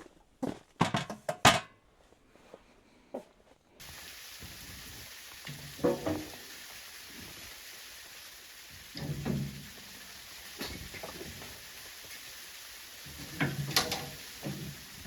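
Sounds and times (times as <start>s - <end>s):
food sizzling in a pan: 3.8s - 15.0s.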